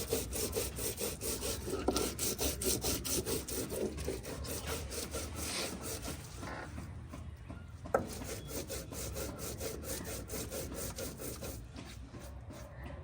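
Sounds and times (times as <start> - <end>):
stone roller grinding on slab: 8.0 - 12.3.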